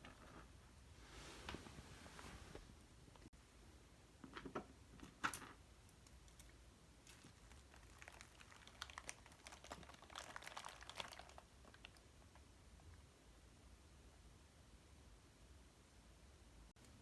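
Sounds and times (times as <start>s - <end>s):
soft rustling: 0.0s - 3.3s.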